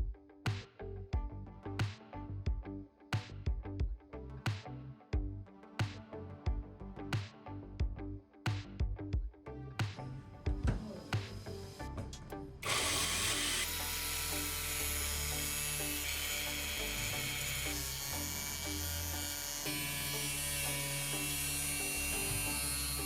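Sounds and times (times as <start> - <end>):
background music: 0.0 - 23.0
small electric power tool running: 12.6 - 23.0.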